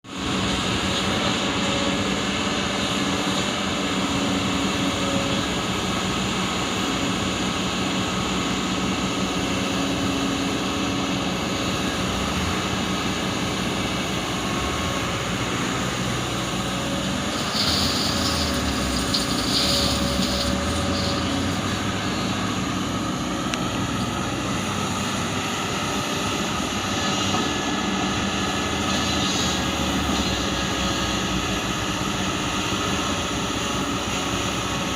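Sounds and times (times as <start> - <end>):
diesel excavator engine running: 0.1 - 34.9
short high hiss: 17.4 - 21.5.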